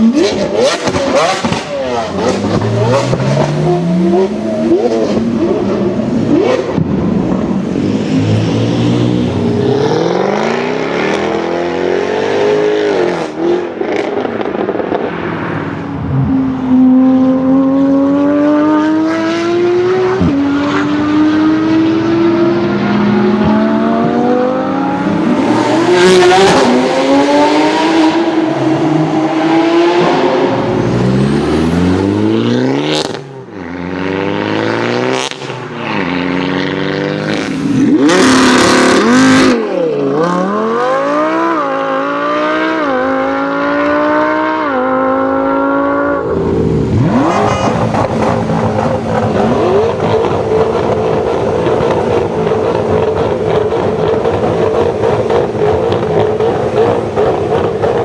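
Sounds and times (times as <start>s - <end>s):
car engine revving and accelerating: 0.0s - 58.0s.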